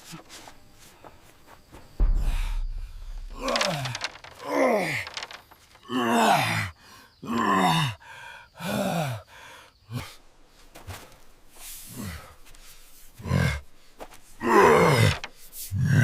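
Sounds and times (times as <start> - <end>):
person sighing and grunting: 2.0 - 8.0.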